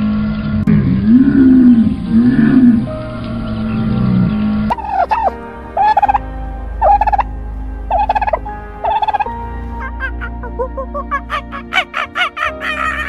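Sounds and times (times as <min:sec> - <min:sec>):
low sound: 0:00.0 - 0:13.0
steady sustained tones: 0:00.0 - 0:13.0
bird warbling call: 0:04.2 - 0:06.2.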